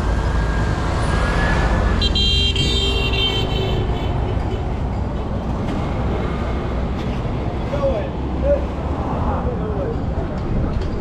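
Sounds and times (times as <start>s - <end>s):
street traffic rumbling: 0.0s - 11.0s
high-pitched vehicle horn: 2.0s - 5.2s.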